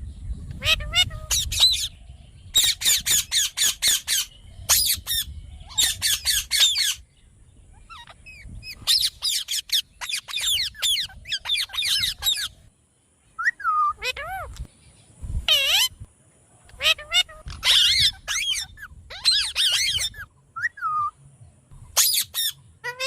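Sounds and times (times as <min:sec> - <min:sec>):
parrot squawking: 0:00.5 - 0:01.9, 0:02.6 - 0:07.0, 0:07.8 - 0:12.5, 0:13.4 - 0:14.6, 0:15.5 - 0:16.0, 0:16.7 - 0:20.2, 0:22.0 - 0:23.0.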